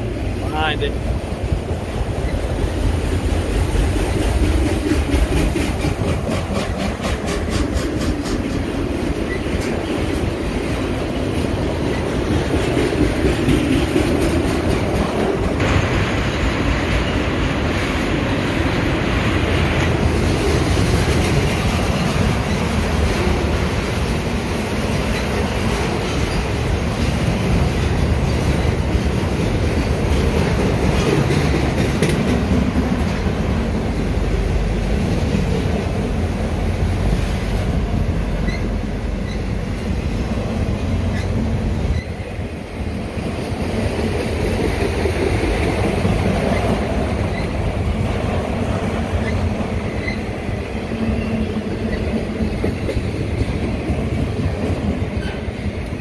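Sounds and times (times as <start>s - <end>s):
train wheels rumbling on rail: 0.0s - 56.0s
wheels clicking over rail joints: 1.6s - 15.7s, 19.7s - 34.0s, 43.2s - 56.0s.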